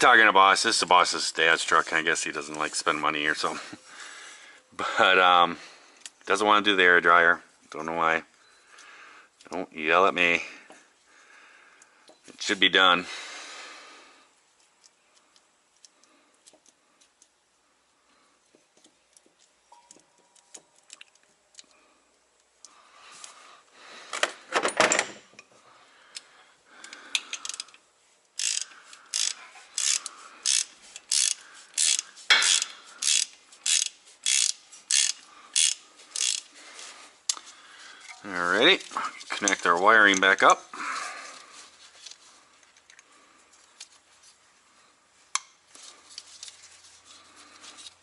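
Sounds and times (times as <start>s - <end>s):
ratchet wrench ratcheting: 27.1s - 27.8s, 28.4s - 36.5s
tool clicks and clanks: 28.4s - 36.5s, 37.3s - 40.4s.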